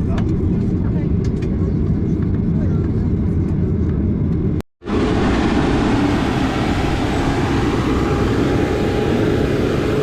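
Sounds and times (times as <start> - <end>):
vehicle low rumble: 0.0 - 10.0.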